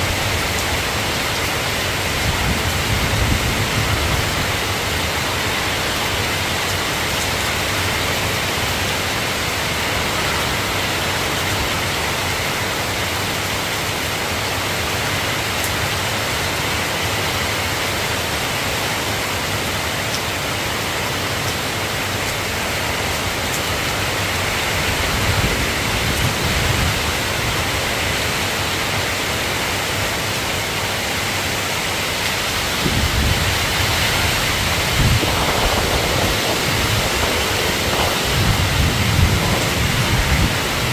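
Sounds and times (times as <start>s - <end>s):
steady rain falling: 0.0s - 40.9s
low rumbles: 32.8s - 40.9s.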